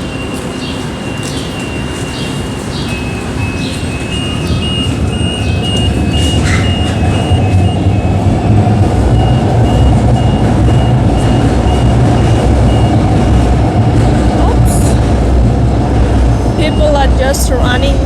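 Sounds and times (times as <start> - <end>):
light-rail train rumbling: 0.0 - 18.0
high electronic beep: 2.9 - 13.4.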